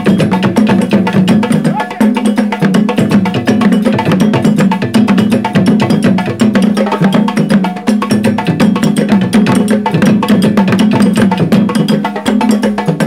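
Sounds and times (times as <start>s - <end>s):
hand drum ensemble: 0.0s - 13.0s.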